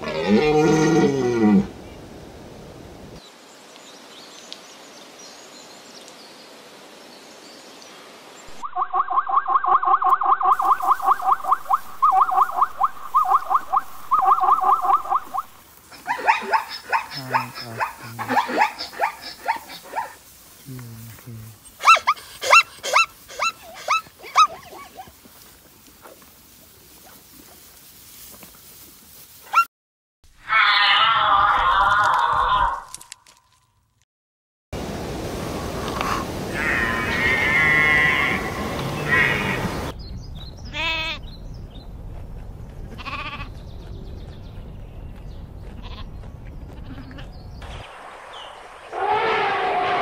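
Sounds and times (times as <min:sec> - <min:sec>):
zebra yelping barks: 0:10.0 - 0:20.2, 0:21.8 - 0:25.2
sheep bleating: 0:36.5 - 0:39.8, 0:40.7 - 0:41.2, 0:43.0 - 0:43.6.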